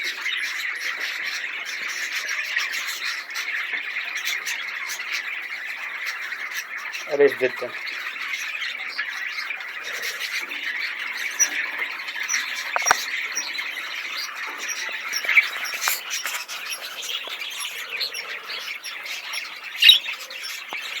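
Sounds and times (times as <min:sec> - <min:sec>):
budgerigar chattering: 0:09.8 - 0:21.0
bird squawk: 0:09.9 - 0:21.0
faint clicks: 0:12.7 - 0:13.1.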